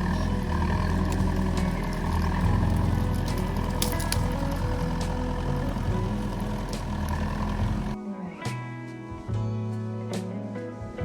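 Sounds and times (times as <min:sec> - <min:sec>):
excavator diesel engine running: 0:00.0 - 0:08.0.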